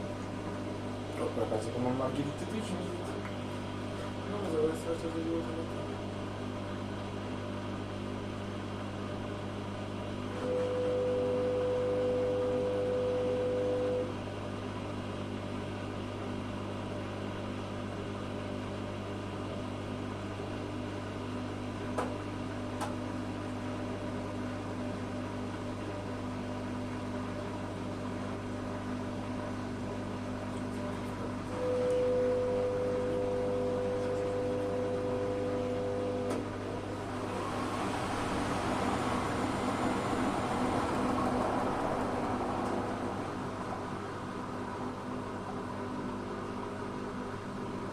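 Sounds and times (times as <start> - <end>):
washing machine humming: 0.0 - 47.9
motor turning drum with whine: 31.4 - 45.7.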